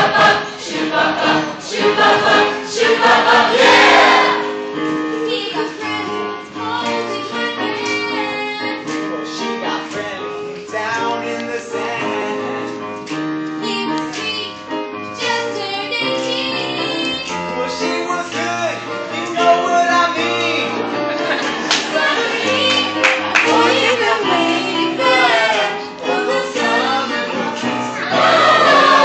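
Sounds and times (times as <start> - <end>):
voices singing: 0.0 - 12.8, 15.3 - 29.0
instrumental accompaniment: 0.0 - 29.0.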